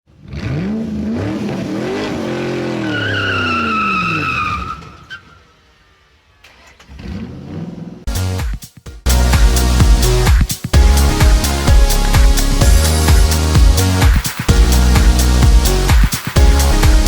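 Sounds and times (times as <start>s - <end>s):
engine revving: 0.1s - 4.3s, 6.4s - 8.1s, 9.1s - 17.0s.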